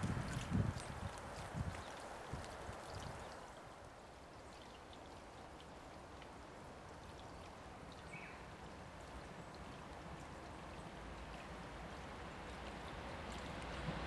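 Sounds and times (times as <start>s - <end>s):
rain hissing: 0.0s - 0.7s.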